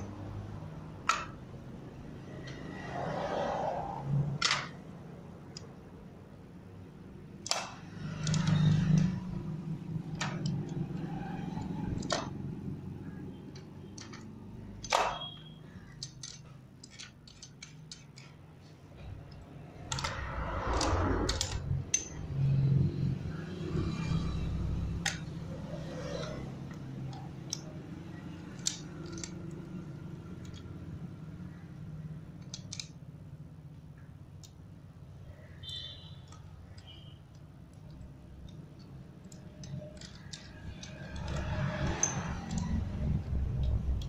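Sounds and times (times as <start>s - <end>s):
metal gearbox parts clinking: 13.4s - 18.4s, 19.0s - 22.7s, 23.8s - 30.8s, 37.7s - 44.0s.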